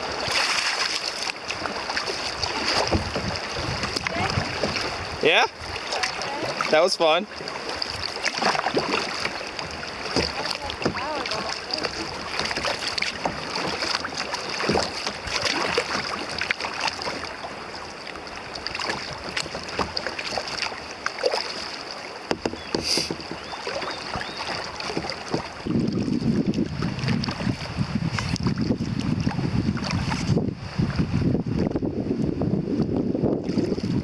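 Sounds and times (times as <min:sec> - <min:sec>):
water splashing and dripping: 0:00.0 - 0:30.4
paddle blades dipping in water: 0:00.0 - 0:31.7, 0:33.4 - 0:34.0
paddle knocks against boat: 0:00.2 - 0:05.0, 0:05.7 - 0:17.4, 0:18.5 - 0:30.4
wind buffeting microphone: 0:01.6 - 0:06.7, 0:24.2 - 0:34.0.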